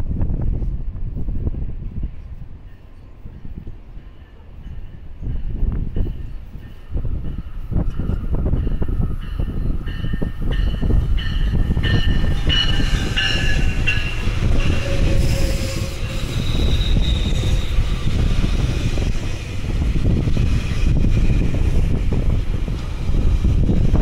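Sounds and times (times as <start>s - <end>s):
train wheels rumbling on rail: 0.0s - 24.0s
high wheel squeal: 11.2s - 19.5s.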